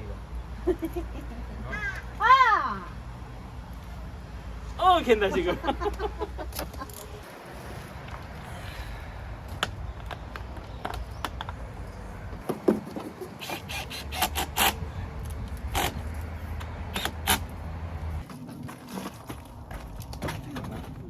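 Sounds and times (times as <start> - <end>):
sharp clicks and knocks: 9.5 - 11.7.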